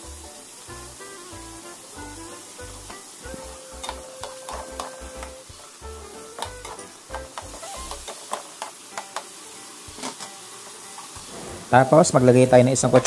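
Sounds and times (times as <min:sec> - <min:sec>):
meat sizzling in a frying pan: 0:00.0 - 0:13.0
utensils scraping a pan: 0:11.0 - 0:12.0.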